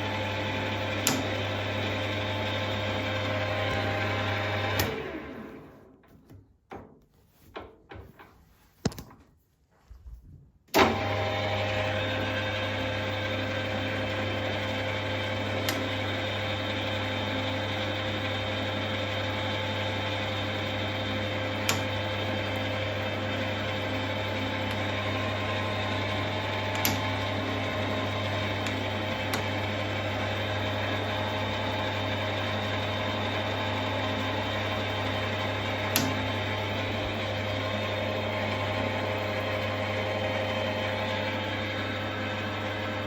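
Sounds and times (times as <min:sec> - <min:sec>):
lathe motor hum: 0:00.0 - 0:05.9, 0:10.8 - 0:43.0
switch click: 0:01.0 - 0:01.4, 0:04.7 - 0:05.1, 0:21.7 - 0:22.0, 0:26.6 - 0:27.3, 0:35.9 - 0:36.3.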